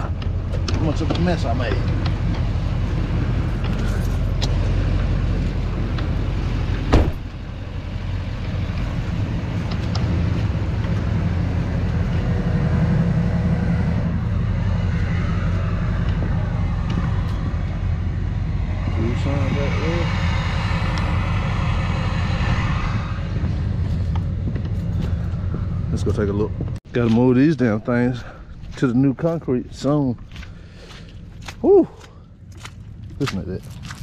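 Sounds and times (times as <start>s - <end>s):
diesel truck engine running: 0.0s - 26.8s.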